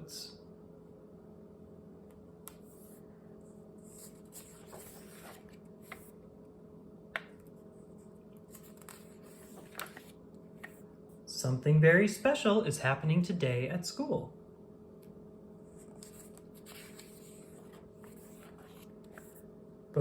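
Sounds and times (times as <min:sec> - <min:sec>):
low steady hum: 0:00.0 - 0:20.0
paper rustling: 0:03.9 - 0:06.2, 0:08.5 - 0:10.8, 0:15.8 - 0:19.4.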